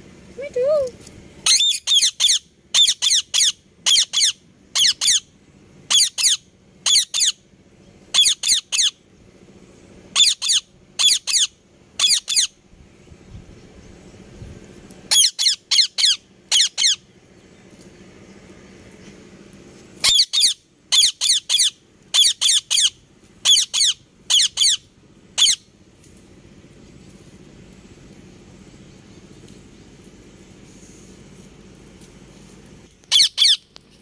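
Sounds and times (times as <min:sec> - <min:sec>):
faint low hum: 0:00.0 - 0:34.0
parrot squawking: 0:01.4 - 0:05.2, 0:05.9 - 0:07.4, 0:08.1 - 0:09.0, 0:10.2 - 0:12.5, 0:15.1 - 0:17.0, 0:20.0 - 0:24.8, 0:25.4 - 0:25.7, 0:33.1 - 0:33.6.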